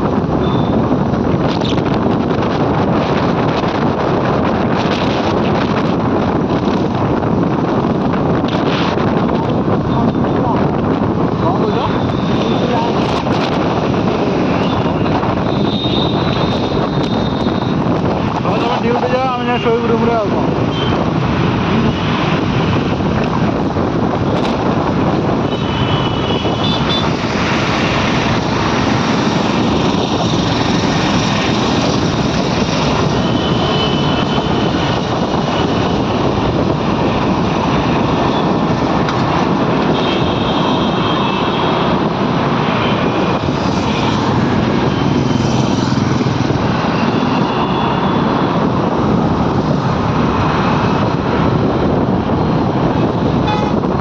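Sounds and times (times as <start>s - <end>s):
vehicle engine and road noise: 0.0s - 54.0s
wind rushing over microphone: 0.0s - 54.0s.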